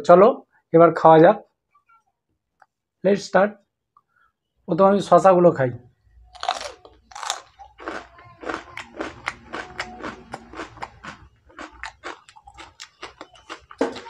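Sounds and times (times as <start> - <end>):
man crunching cucumber: 6.4 - 14.0.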